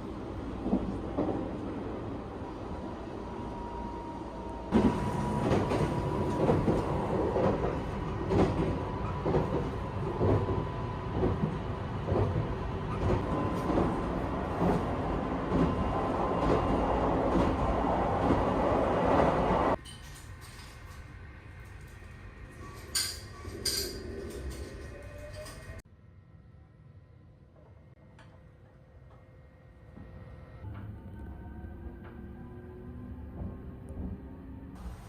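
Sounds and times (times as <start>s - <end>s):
train wheels clacking on rails: 4.7s - 18.5s.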